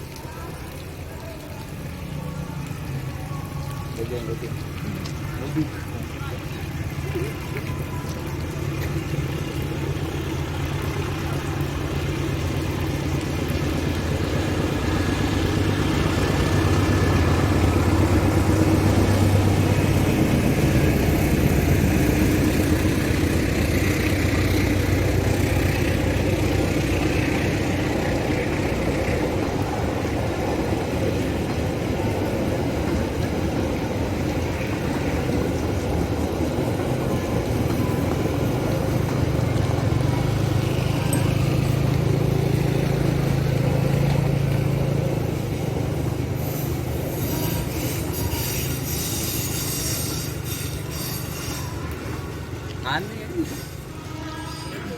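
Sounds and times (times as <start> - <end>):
train running past: 0.0 - 54.9.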